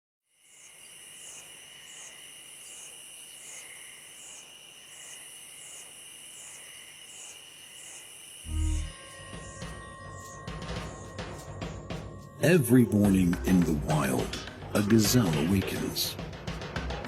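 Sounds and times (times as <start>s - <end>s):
crickets trilling: 0.3s - 12.5s.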